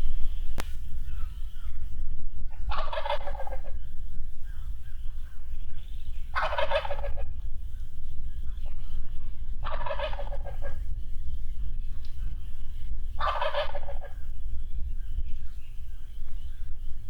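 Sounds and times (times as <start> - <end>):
turkey gobbling: 2.5 - 5.3, 6.2 - 7.4, 8.5 - 11.0, 12.0 - 14.4.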